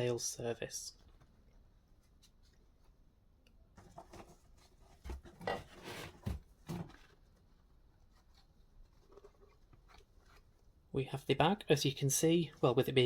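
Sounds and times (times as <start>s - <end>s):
paper packaging rustling and scraping: 3.8s - 10.8s.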